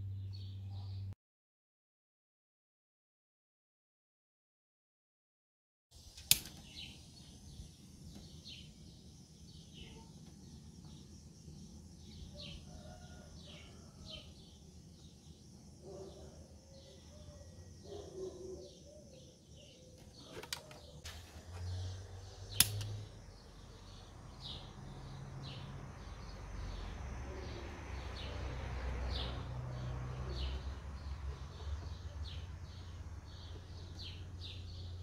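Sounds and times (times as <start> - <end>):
sharp clicks: 6.1 - 6.7, 22.5 - 23.1
birds chirping: 6.1 - 35.0.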